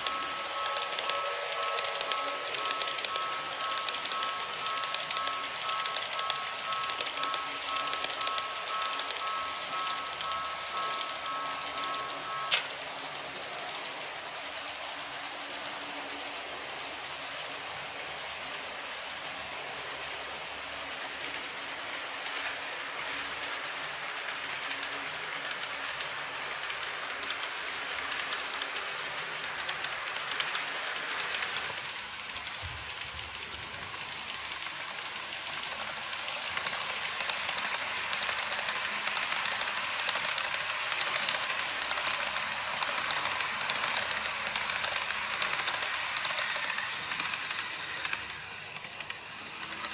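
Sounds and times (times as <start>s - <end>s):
wheels clicking over rail joints: 0.0s - 12.9s, 25.4s - 49.9s
model train rattling hiss: 0.0s - 49.9s.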